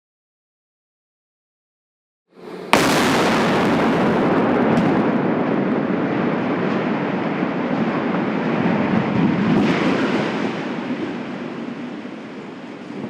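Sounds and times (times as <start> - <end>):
sharp crash: 2.7 - 5.8
structure collapsing rumble: 2.7 - 13.0.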